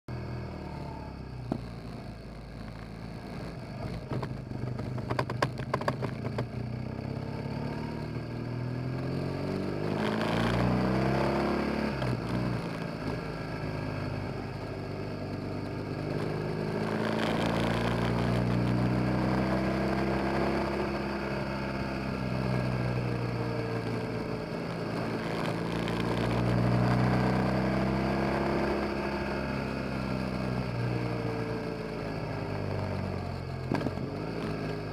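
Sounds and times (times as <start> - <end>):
motorcycle engine and exhaust: 0.1 - 34.9
sharp clatters: 3.8 - 6.6.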